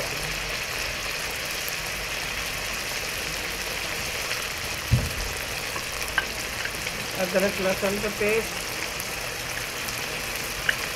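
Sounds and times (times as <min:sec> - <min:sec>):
paste sizzling in hot oil: 0:00.0 - 0:10.9
dull thump: 0:04.8 - 0:05.4.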